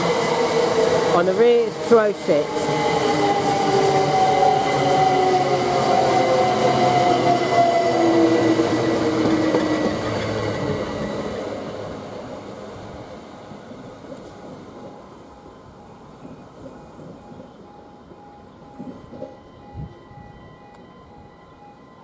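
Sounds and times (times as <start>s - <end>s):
train traction motors whining: 0.0s - 11.8s
wheel and rail noise: 0.0s - 22.0s.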